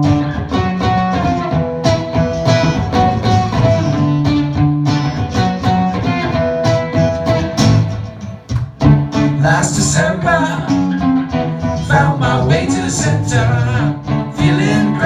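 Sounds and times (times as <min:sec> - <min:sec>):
live band playing: 0:00.0 - 0:15.0
strummed guitar chords: 0:00.0 - 0:15.0.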